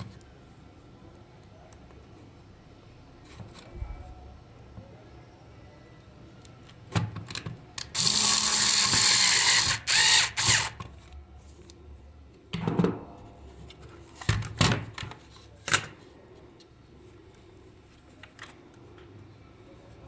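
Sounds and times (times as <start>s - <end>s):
small power tool running: 8.0s - 10.8s.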